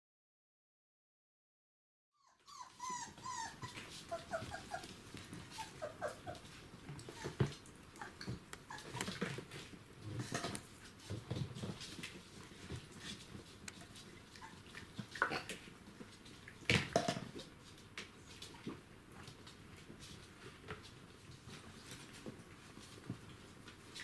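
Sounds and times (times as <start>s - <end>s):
puppies squeaking and whimpering: 2.2s - 9.4s, 14.3s - 14.6s
puppies growling: 2.2s - 10.6s, 14.3s - 15.7s.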